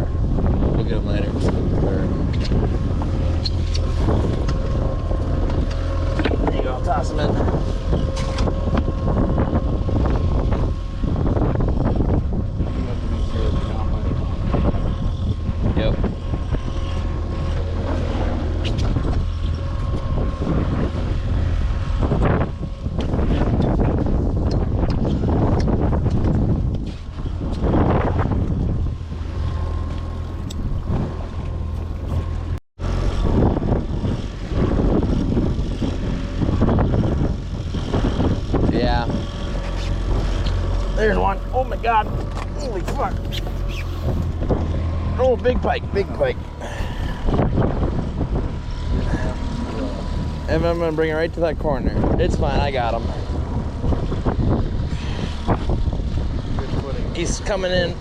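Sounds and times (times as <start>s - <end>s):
waves slapping boat hull: 0.0s - 58.0s
wind buffeting microphone: 0.0s - 58.0s.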